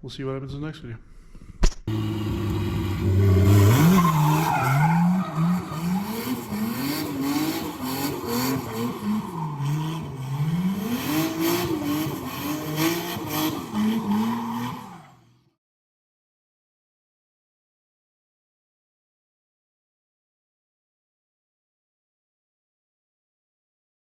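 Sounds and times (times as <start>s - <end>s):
car engine revving: 1.9s - 15.4s.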